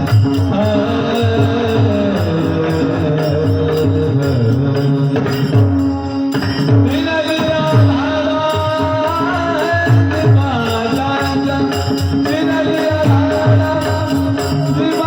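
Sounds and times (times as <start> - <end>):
drum beats: 0.0 - 15.0.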